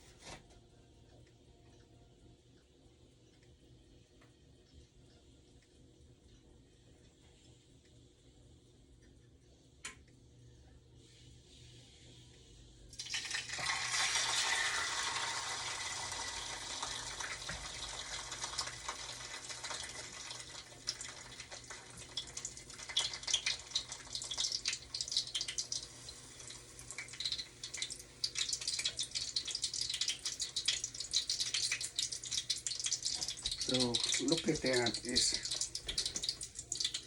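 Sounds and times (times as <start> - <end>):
oil sizzling in a frying pan: 13.0 - 37.0
oil crackling and spitting: 26.6 - 37.0.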